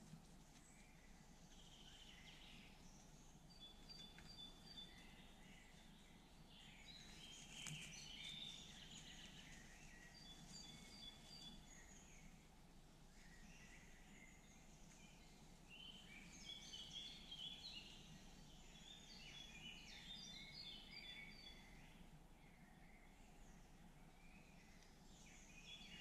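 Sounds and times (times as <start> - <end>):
low background hiss: 0.0 - 26.0
birds chirping: 0.6 - 26.0.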